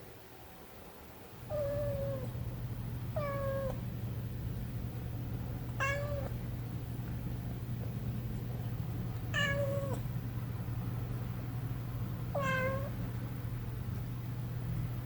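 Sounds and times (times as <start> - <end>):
steady low hum: 0.0 - 15.0
kitten meowing: 1.5 - 2.3, 3.2 - 3.8, 5.8 - 6.4, 9.3 - 10.0, 12.4 - 13.0.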